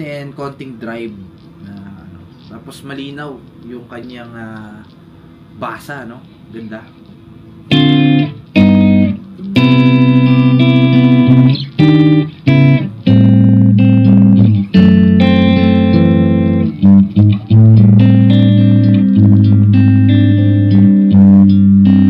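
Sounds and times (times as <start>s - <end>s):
electric guitar chords strummed: 7.5s - 22.0s.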